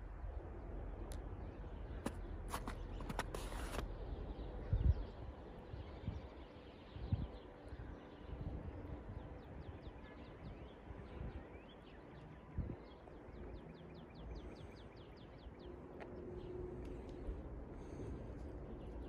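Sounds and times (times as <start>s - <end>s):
low uneven rumble: 12.6s - 19.0s.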